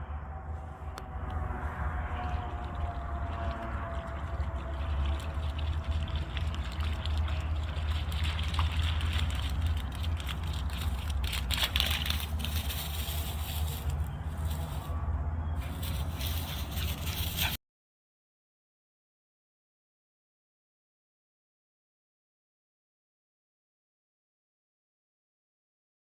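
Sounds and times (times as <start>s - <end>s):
low rumble: 0.0s - 17.6s
running water rushing: 1.4s - 14.9s.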